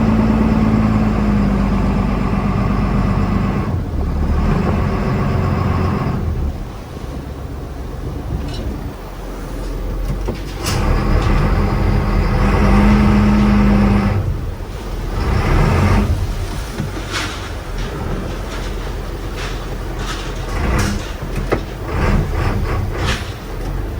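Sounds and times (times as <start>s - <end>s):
boat engine humming: 0.0s - 23.9s.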